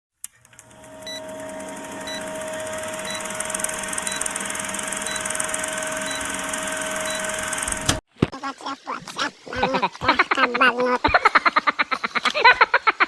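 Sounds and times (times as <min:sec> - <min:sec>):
electronic hum: 0:00.3 - 0:08.0
short high beeps: 0:05.9 - 0:06.3.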